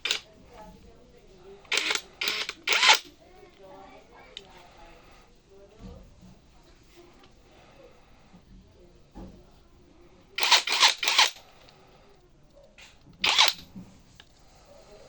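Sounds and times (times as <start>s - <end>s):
impact wrench bursts: 1.7s - 3.1s, 10.4s - 11.4s, 13.2s - 13.6s.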